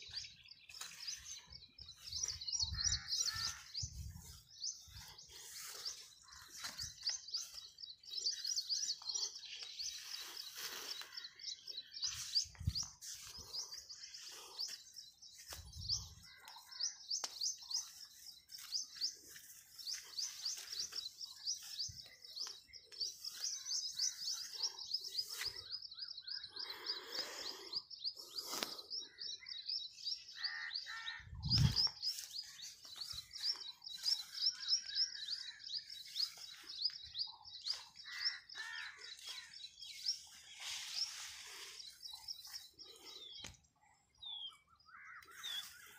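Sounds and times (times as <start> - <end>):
high-pitched bird chirping: 0.8 - 6.1, 31.2 - 38.5.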